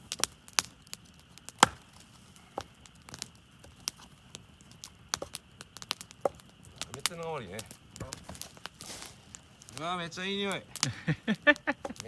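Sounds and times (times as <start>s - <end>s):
firewood splitting cracks: 0.0s - 12.0s.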